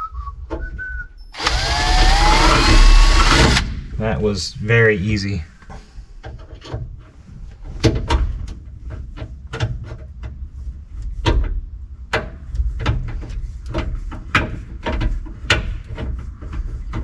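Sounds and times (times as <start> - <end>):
low rumble: 1.4 - 4.9.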